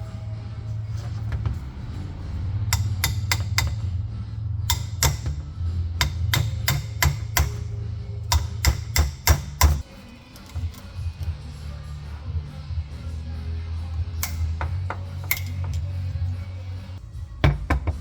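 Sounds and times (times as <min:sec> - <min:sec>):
hammer strikes: 0:02.7 - 0:04.1, 0:04.7 - 0:09.8, 0:14.2 - 0:15.9.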